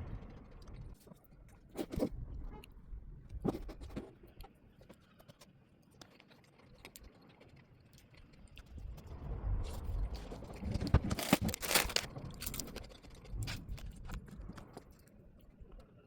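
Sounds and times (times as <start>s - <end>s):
objects clicking and scraping: 10.2s - 15.9s.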